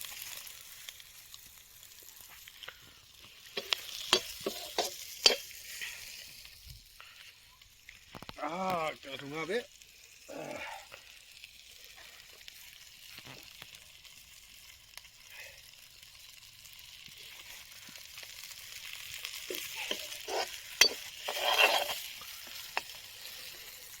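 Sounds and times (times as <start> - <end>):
chicken sizzling in a pan: 0.0 - 24.0
scraping strokes: 3.6 - 5.5, 19.5 - 23.0.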